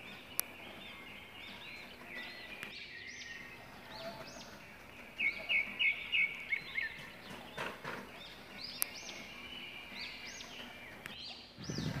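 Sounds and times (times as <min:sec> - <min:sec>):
small birds chirping: 0:00.0 - 0:12.0
whistled bird notes: 0:00.0 - 0:12.0.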